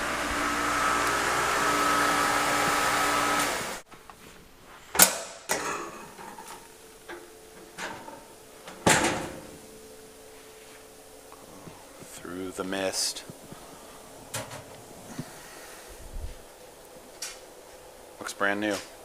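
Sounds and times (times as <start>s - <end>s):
dishwasher humming and hissing: 0.0s - 3.8s, 5.5s - 19.0s
dishwasher door clacks and clunk: 8.8s - 9.5s.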